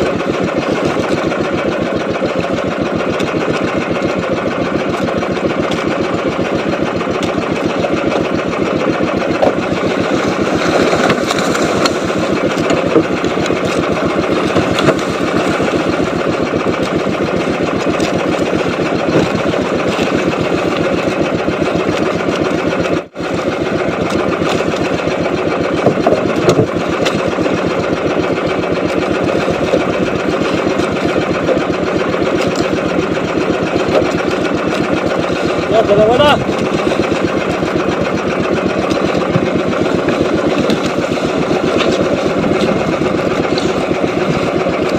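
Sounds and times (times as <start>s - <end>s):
small boat engine chugging: 0.0s - 44.9s.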